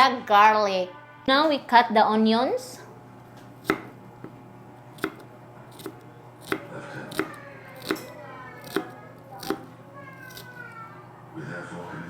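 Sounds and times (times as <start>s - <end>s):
knife cutting onions on board: 3.6s - 4.4s, 5.0s - 10.6s.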